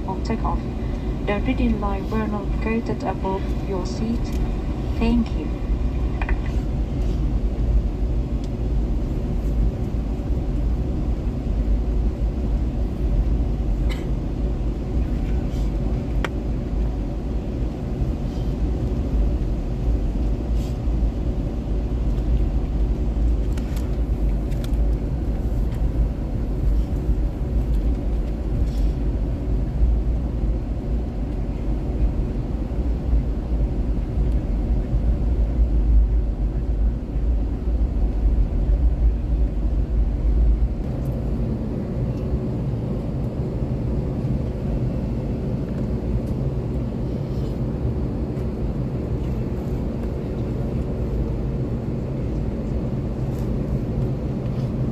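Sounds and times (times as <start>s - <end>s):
airliner cabin rumble: 0.0s - 54.9s.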